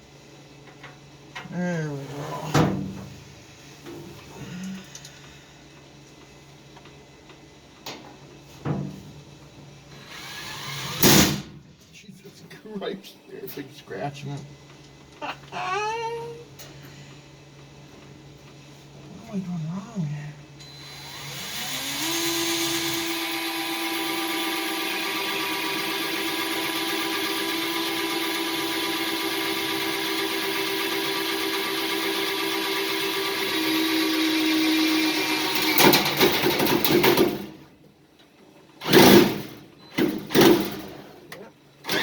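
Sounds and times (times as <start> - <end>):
electric drill whine: 10.0 - 11.2, 20.6 - 35.8.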